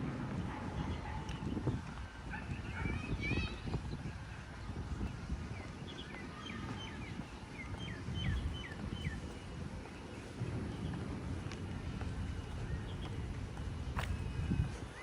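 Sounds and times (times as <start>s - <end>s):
small birds chirping: 2.4s - 15.0s
steady low rumble: 6.8s - 15.0s.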